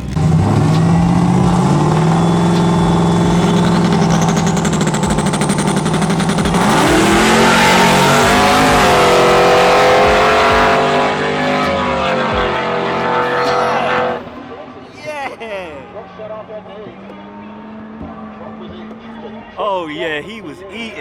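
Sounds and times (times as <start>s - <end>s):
supercharged truck engine revving: 0.0s - 19.6s.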